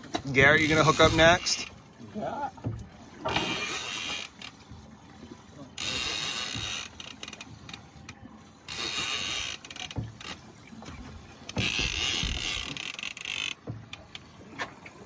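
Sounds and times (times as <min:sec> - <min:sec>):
fishing reel ratcheting: 0:03.3 - 0:04.5, 0:05.8 - 0:07.8, 0:08.7 - 0:10.4, 0:11.5 - 0:14.1.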